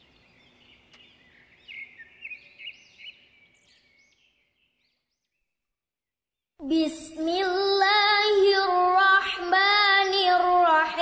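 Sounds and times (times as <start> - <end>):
birds chirping: 0.0 - 5.6.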